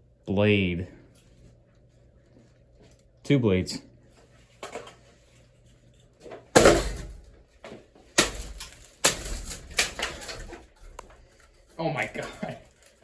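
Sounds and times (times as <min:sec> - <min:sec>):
fan motor hum: 0:00.0 - 0:13.0
fan blades crashing and smashing: 0:06.5 - 0:07.4, 0:08.0 - 0:13.0.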